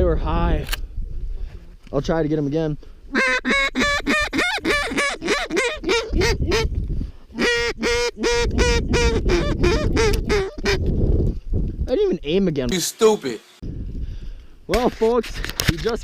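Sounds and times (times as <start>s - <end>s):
wind rumble on microphone: 0.0s - 2.3s, 5.8s - 12.5s, 13.6s - 16.0s
goose call honks and clucks: 3.1s - 6.8s, 7.4s - 10.9s.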